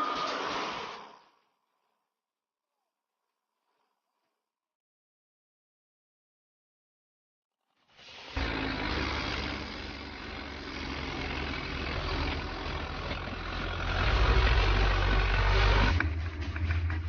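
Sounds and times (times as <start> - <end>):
heavy machine engine humming: 8.4 - 17.0.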